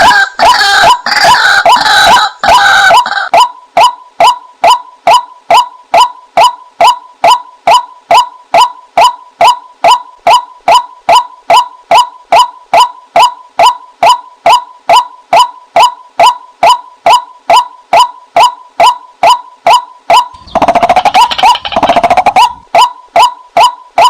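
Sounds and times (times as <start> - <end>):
waterhen calls: 0.0 - 3.5, 20.3 - 23.3.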